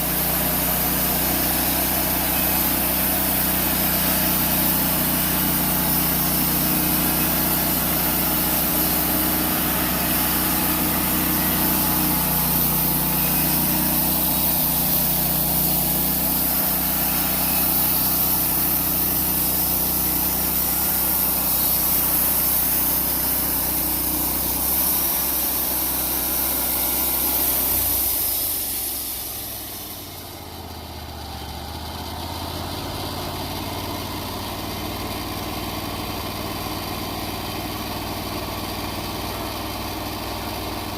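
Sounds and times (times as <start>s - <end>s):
band blade hissing through log: 0.0s - 30.6s
sawmill engine under load: 0.0s - 40.9s.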